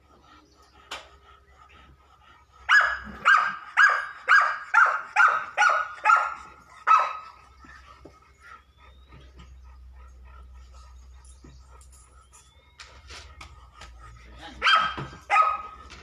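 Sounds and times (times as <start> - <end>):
dog barking: 2.7 - 7.4, 14.5 - 15.8.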